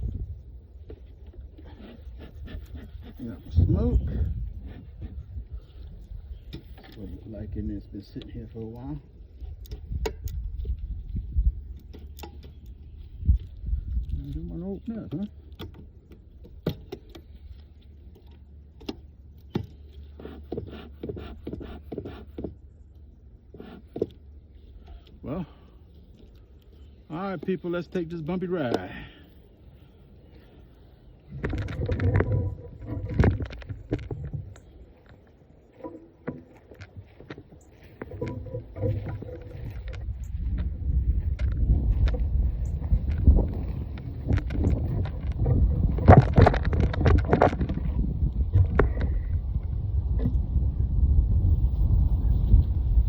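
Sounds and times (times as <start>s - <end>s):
low rumble: 0.0s - 0.8s, 31.2s - 53.0s
wind buffeting microphone: 0.0s - 21.9s, 29.4s - 53.0s
wooden beehive frames clicking: 11.6s - 22.7s, 31.2s - 49.5s
hive tool knocking and scraping wood: 18.8s - 22.6s, 31.3s - 40.2s, 41.2s - 49.2s.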